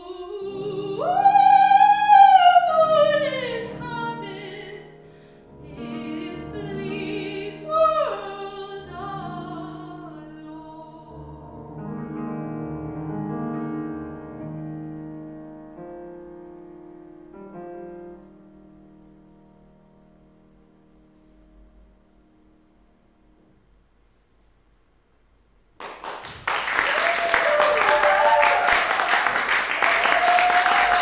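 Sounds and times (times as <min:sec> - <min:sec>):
soprano singing: 0:00.0 - 0:12.0
piano accompaniment: 0:00.0 - 0:24.2.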